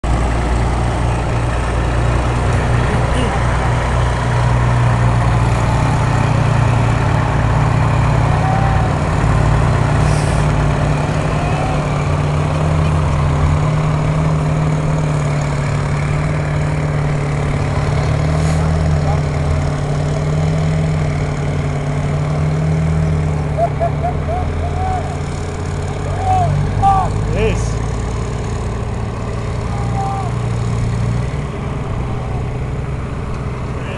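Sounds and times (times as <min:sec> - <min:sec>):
diesel truck engine running: 0:00.0 - 0:33.9.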